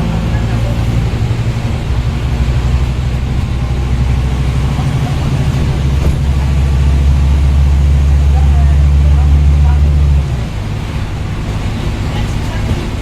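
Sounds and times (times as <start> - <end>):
bus diesel engine drone: 0.0 - 13.0.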